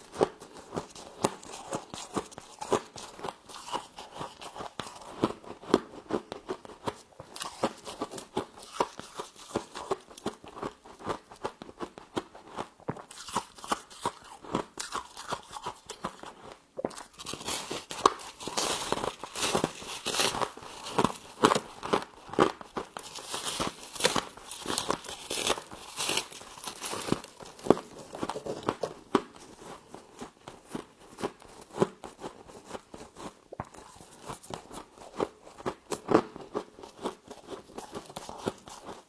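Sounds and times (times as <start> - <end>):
frost crunching while chewed: 0.0 - 39.0.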